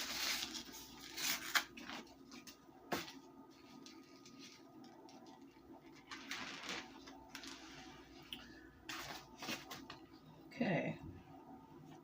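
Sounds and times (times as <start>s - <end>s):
wrapping rustling and crinkling: 0.0s - 8.0s.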